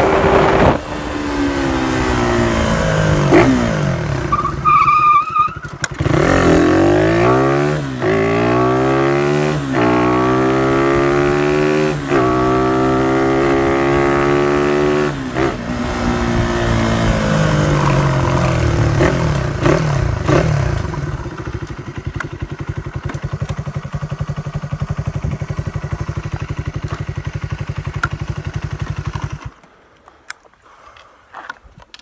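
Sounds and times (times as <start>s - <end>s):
motorcycle engine idling: 17.1s - 29.6s.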